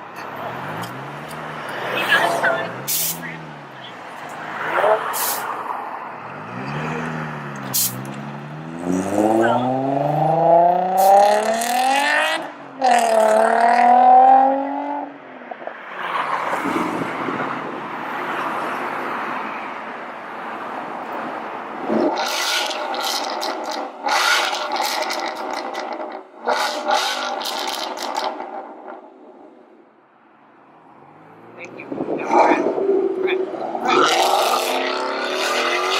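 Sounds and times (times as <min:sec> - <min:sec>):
car engine revving: 0:00.2 - 0:05.4, 0:06.1 - 0:15.2, 0:21.8 - 0:29.4, 0:30.8 - 0:35.9.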